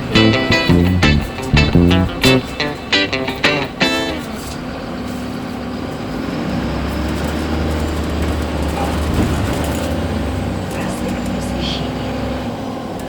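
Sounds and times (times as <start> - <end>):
bus engine and road drone: 3.7 - 13.0.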